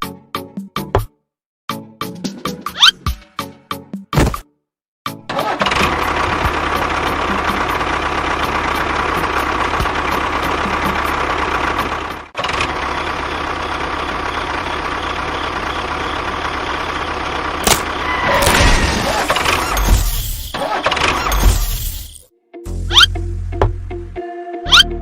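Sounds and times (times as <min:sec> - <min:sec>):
engine running: 0:05.3 - 0:23.5.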